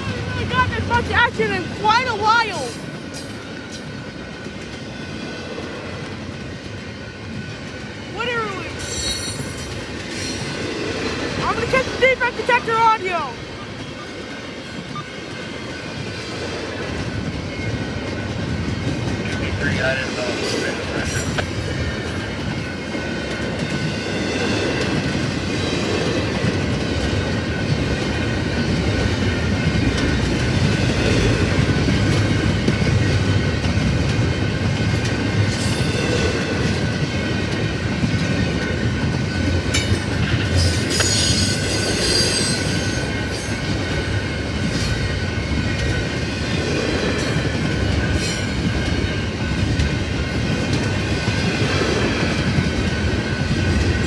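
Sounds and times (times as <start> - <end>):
freight train rumbling and clattering: 0.0 - 54.0
high wheel squeal: 40.6 - 43.7.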